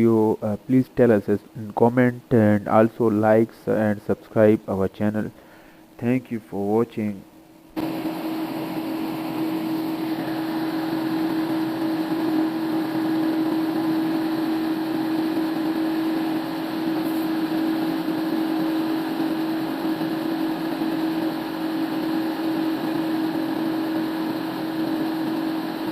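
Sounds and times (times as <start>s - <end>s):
sawmill machine hum: 7.8s - 25.9s.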